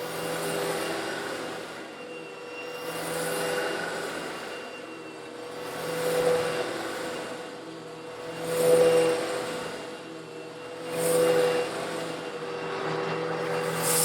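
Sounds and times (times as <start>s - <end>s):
vacuum cleaner motor whine: 0.0s - 14.0s
grit hissing up vacuum intake: 13.5s - 14.0s.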